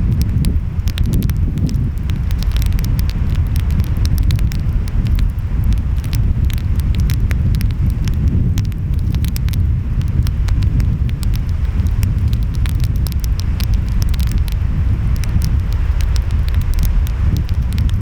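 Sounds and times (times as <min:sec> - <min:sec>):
wind: 0:00.0 - 0:18.0
wood fire crackling: 0:00.0 - 0:18.0.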